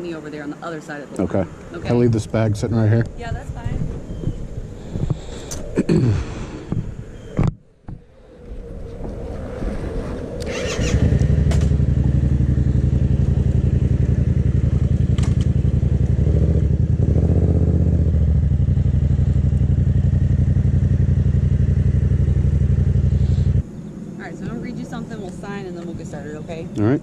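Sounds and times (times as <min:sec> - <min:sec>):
motorcycle engine running: 0:10.5 - 0:23.6.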